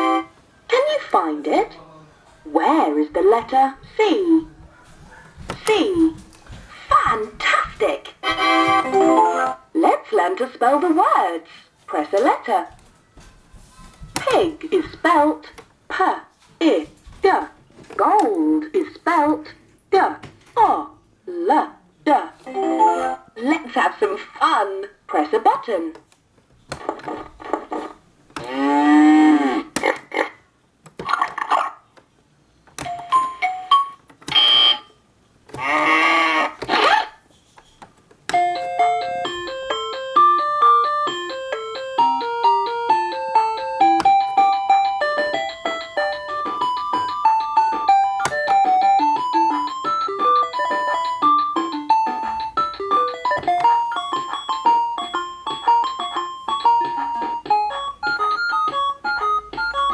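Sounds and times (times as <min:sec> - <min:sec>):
toy sound effects and chimes: 0:32.8 - 0:34.9, 0:42.0 - 0:59.9.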